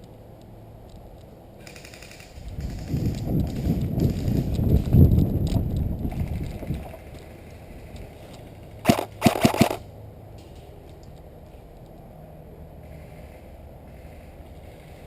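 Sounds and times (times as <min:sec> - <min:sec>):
rustling of movement: 0:00.0 - 0:12.2
airsoft gun firing: 0:08.8 - 0:09.9.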